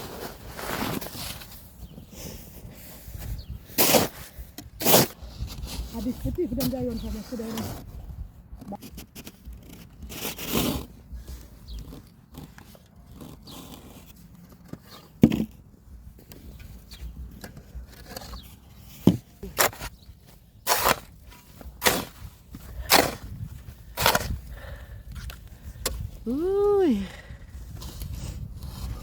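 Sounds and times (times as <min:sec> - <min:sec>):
snow shovel scraping snow: 0:00.0 - 0:07.9, 0:08.7 - 0:14.2, 0:20.6 - 0:24.7.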